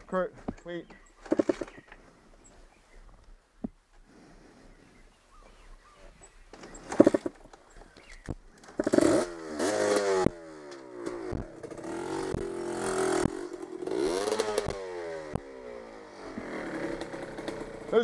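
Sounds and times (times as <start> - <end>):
sharp knocks and clatter: 1.2 - 1.9, 6.5 - 7.6
dirt bike engine revving: 6.6 - 7.4, 8.5 - 18.0.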